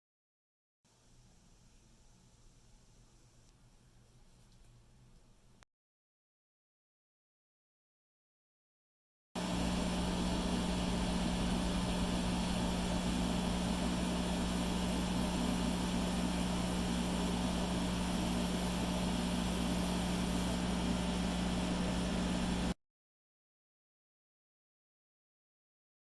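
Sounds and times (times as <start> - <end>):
small motor droning: 9.4 - 22.8.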